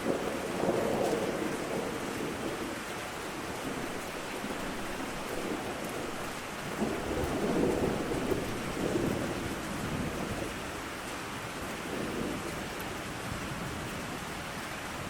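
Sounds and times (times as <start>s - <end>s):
thunder rumbling: 0.0s - 10.8s
steady rain falling: 0.0s - 15.0s.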